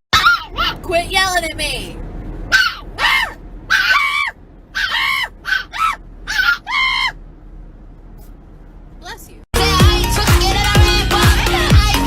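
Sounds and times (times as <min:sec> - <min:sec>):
bird squawking: 0:02.6 - 0:07.2.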